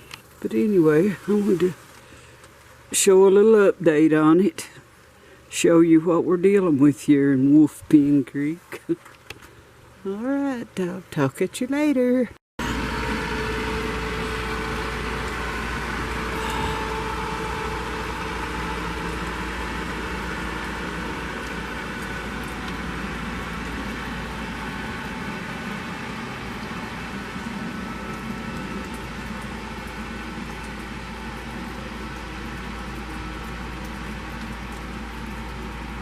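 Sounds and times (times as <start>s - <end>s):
motor-like drone: 12.6s - 36.0s.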